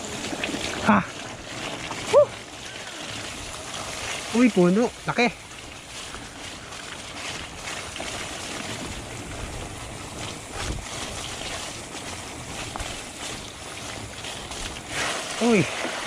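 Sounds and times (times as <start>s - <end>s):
bike tyres rolling on dirt: 0.0s - 16.0s
wind rushing over microphone: 8.6s - 13.6s.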